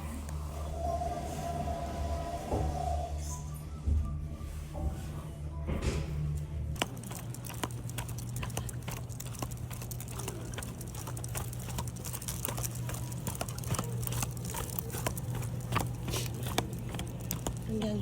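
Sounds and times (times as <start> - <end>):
dog claws clicking on floor: 6.8 - 18.0.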